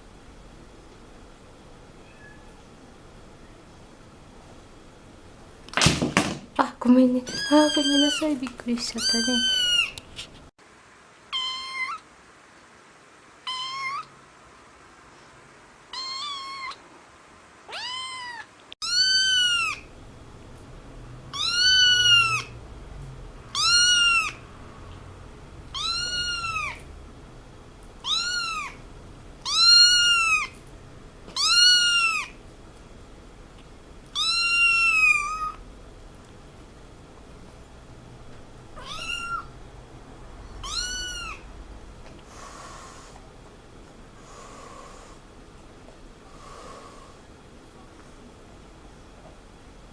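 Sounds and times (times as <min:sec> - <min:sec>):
cat meowing: 0:02.0 - 0:02.7, 0:07.3 - 0:08.3, 0:09.0 - 0:10.0, 0:11.3 - 0:12.0, 0:13.4 - 0:14.1, 0:15.9 - 0:16.8, 0:17.7 - 0:19.9, 0:21.3 - 0:22.5, 0:23.5 - 0:24.4, 0:25.7 - 0:26.8, 0:28.0 - 0:28.8, 0:29.4 - 0:30.6, 0:31.4 - 0:32.4, 0:34.1 - 0:35.6, 0:38.8 - 0:39.5, 0:40.6 - 0:41.5.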